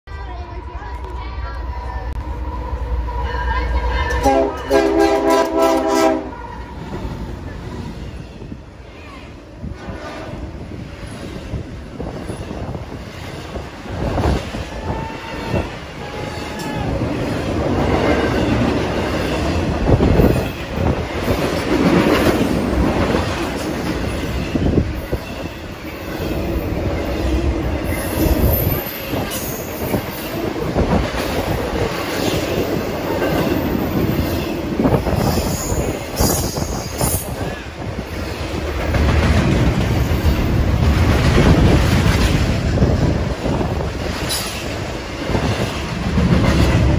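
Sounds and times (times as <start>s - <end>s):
freight train wheels clattering: 9.8s - 46.9s.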